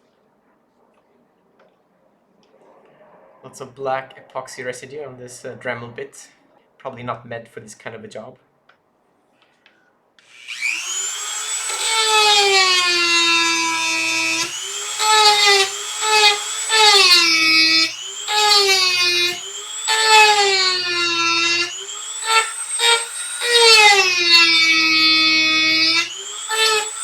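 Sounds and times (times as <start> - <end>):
rotary tool grinding: 10.3 - 27.0.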